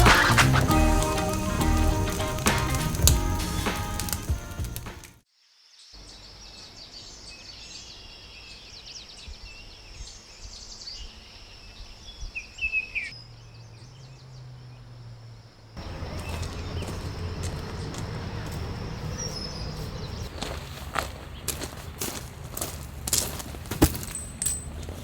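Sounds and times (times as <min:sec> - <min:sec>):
loud falling bird call: 0:00.0 - 0:05.0, 0:15.8 - 0:20.6
birds chirping: 0:00.0 - 0:05.1, 0:06.0 - 0:23.0
high insect drone: 0:00.0 - 0:05.7, 0:14.1 - 0:20.5.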